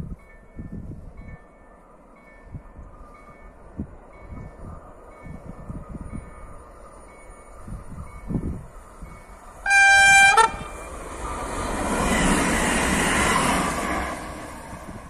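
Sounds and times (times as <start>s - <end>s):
train wheels rushing on rails: 0.8s - 15.0s
train horn blast: 9.6s - 10.8s.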